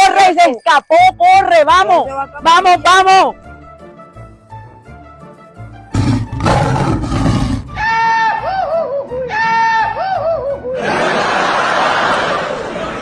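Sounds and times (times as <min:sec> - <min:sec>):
loud rough roar: 0:06.0 - 0:07.7.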